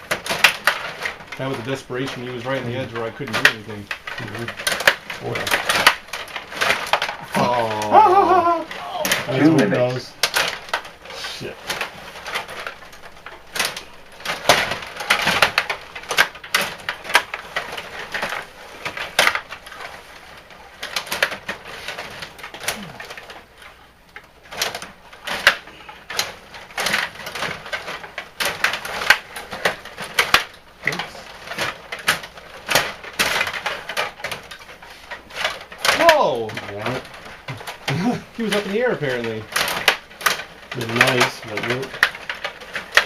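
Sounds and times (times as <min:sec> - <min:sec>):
faint voices: 0:07.2 - 0:10.2.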